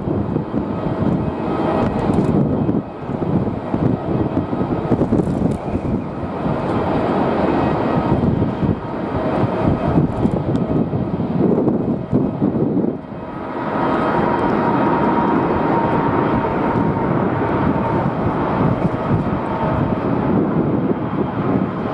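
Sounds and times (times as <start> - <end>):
jet engine whine: 0.0 - 21.9
wind buffeting microphone: 0.0 - 21.9.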